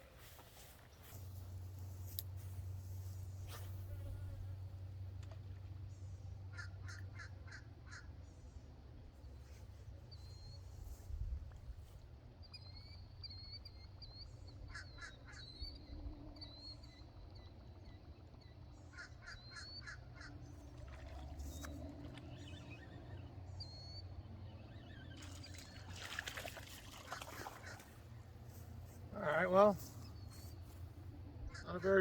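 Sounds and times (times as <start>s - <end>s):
low steady rumble: 0.0s - 14.7s.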